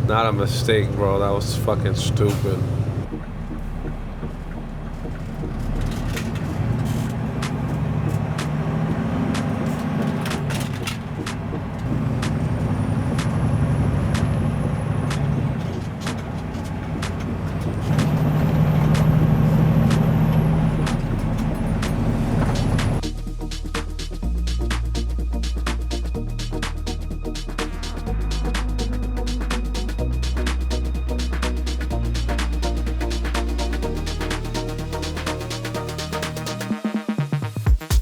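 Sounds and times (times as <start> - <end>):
truck diesel engine drone: 0.0 - 36.7
sharp clicks: 15.0 - 18.2.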